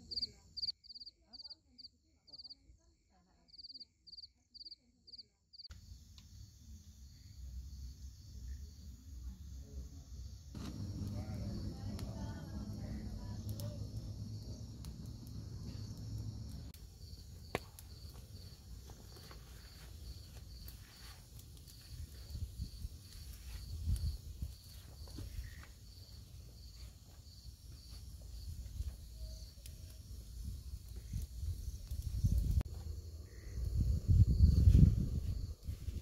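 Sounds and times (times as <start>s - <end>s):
crickets chirping: 0.0s - 1.5s, 3.5s - 36.0s
campfire popping: 10.5s - 33.0s.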